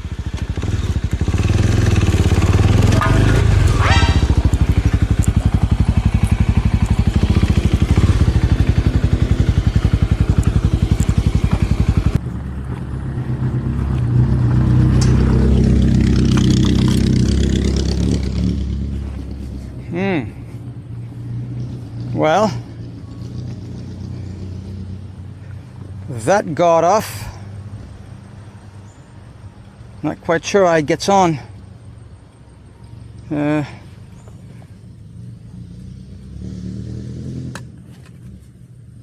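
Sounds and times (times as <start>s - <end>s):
motorcycle engine running: 0.0s - 26.4s.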